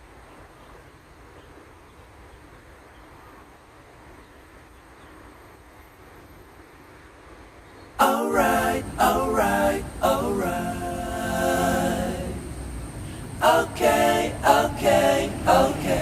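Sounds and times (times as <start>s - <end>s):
person singing: 8.0s - 12.5s.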